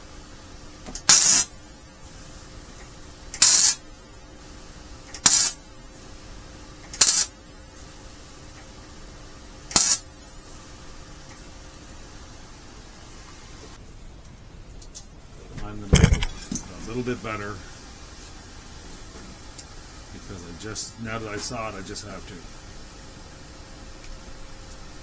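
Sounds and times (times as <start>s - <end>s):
welding arc crackling: 1.0s - 1.5s, 3.3s - 3.8s, 5.1s - 5.6s, 6.9s - 7.4s, 9.7s - 10.1s.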